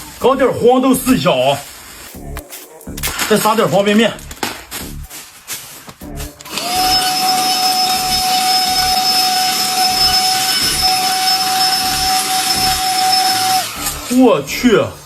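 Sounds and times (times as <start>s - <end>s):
handheld vacuum cleaner whine: 6.4s - 14.5s.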